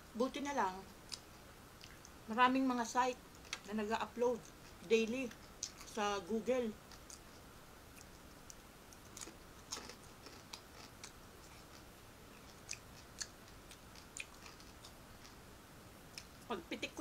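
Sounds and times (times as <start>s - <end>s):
person chewing: 1.0s - 2.2s, 4.4s - 6.0s, 6.8s - 15.5s
light crunches of food: 7.9s - 15.4s.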